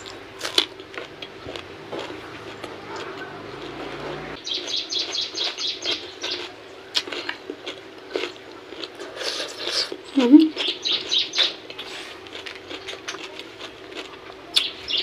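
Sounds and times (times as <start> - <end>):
small bird chirping: 4.4 - 6.6, 9.4 - 11.6, 14.6 - 15.0.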